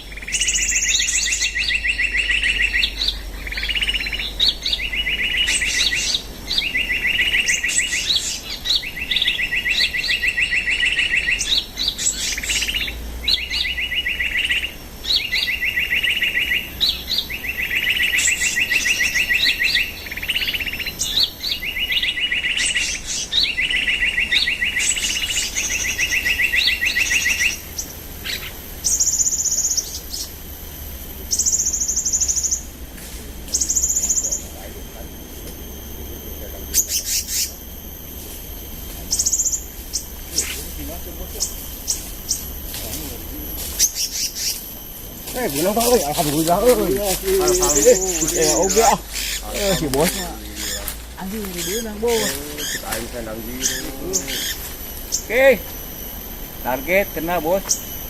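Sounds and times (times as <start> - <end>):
birds trilling: 0.0 - 58.0
sharp high bird chips: 36.7 - 37.7, 38.5 - 58.0.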